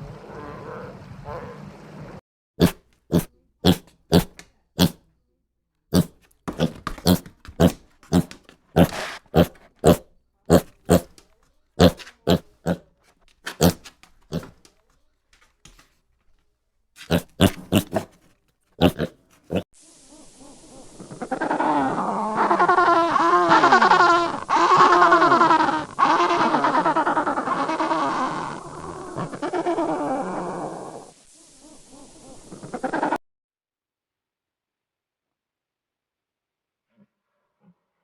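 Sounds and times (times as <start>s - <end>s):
pig grunting: 2.6s - 5.0s, 5.9s - 11.2s, 11.8s - 12.9s, 13.5s - 14.6s, 17.0s - 18.2s, 18.8s - 19.6s.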